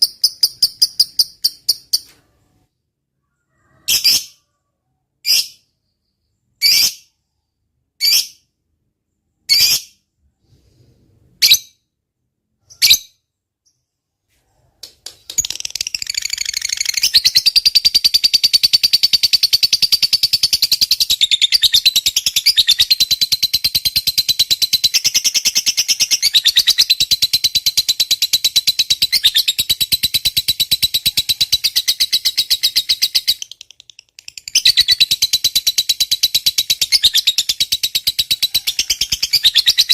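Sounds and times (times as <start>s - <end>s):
lovebird rapid chattering trill: 0.0s - 2.0s, 15.3s - 39.9s
lovebird chirps: 0.0s - 2.6s, 3.2s - 7.4s, 9.4s - 10.6s, 15.1s - 39.9s.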